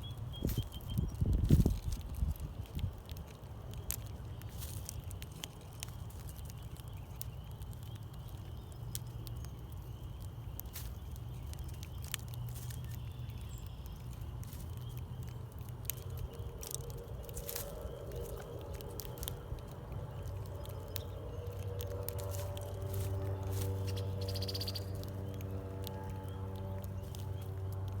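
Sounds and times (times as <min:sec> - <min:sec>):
animal eating seed clicking: 0:00.0 - 0:28.0
steady low rumble: 0:00.0 - 0:28.0.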